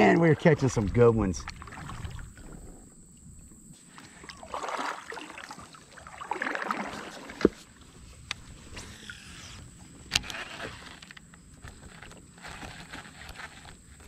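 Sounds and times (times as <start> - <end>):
paddle strokes swishing through water: 0.5 - 2.9, 3.8 - 11.0.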